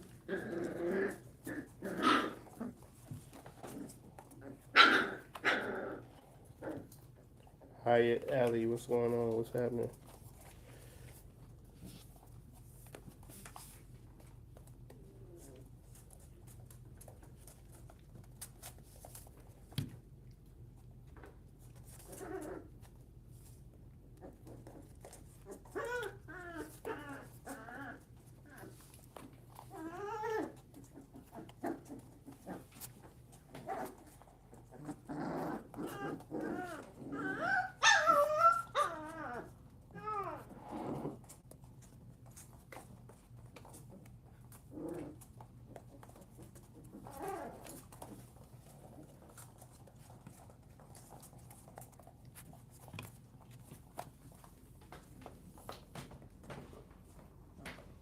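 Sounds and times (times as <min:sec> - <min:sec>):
puppies whining and yelping: 0:24.5 - 0:28.8, 0:29.5 - 0:32.7, 0:34.8 - 0:40.6.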